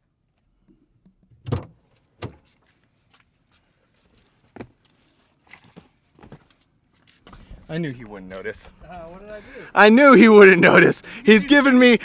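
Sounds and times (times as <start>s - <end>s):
keys jangling: 4.1s - 6.0s.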